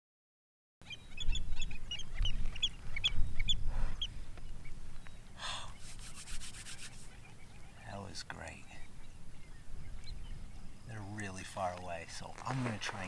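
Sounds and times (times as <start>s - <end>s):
flock of birds calling: 0.8s - 13.0s.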